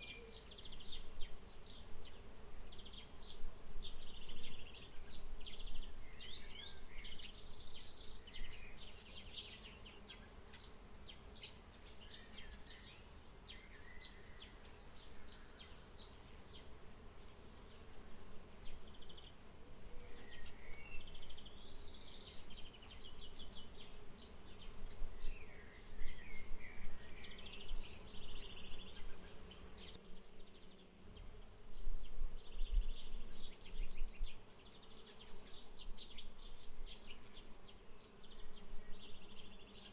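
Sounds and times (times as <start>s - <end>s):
faint insect buzz: 0.0s - 39.9s
songbirds chirping and trilling: 0.0s - 39.9s
wind rumble on microphone: 31.7s - 34.4s.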